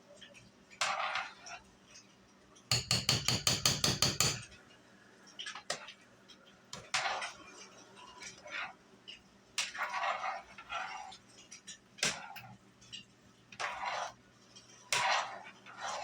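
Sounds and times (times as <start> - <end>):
kitchenware scrapes and clinks: 2.7 - 4.5
metal spoon tapping pot rim: 2.7 - 4.5.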